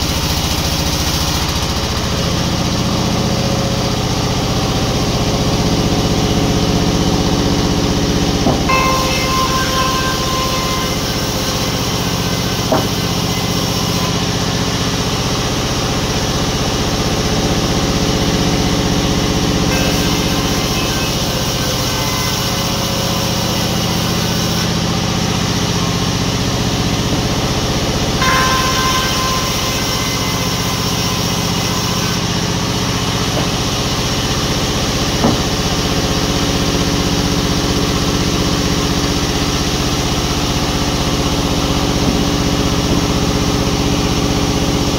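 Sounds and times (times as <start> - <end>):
sawmill machinery humming: 0.0 - 44.9
sharp knocks: 8.4 - 11.6, 12.6 - 13.2, 35.2 - 35.6.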